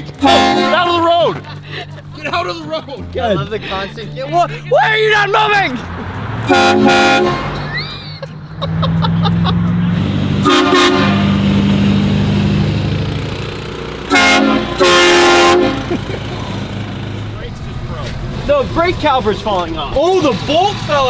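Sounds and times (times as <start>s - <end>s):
air horn blasts: 0.0s - 1.4s, 6.4s - 8.0s, 10.4s - 12.0s, 14.0s - 16.0s
vehicle running: 0.0s - 21.0s.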